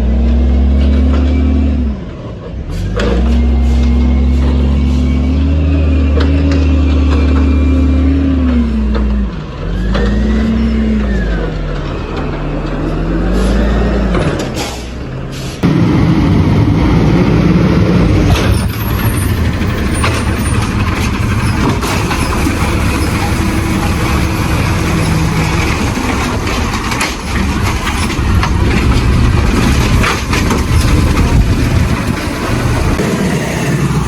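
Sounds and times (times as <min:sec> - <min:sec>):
garbage truck engine running: 0:00.0 - 0:34.0
knocks and clatter: 0:15.6 - 0:34.0.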